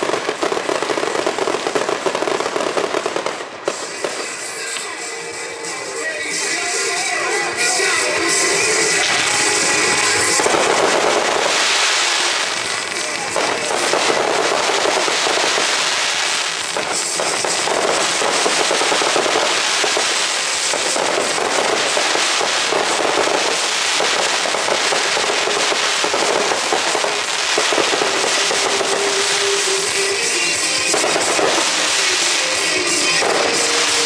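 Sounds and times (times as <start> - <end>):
fireworks crackling and popping: 0.0 - 34.0.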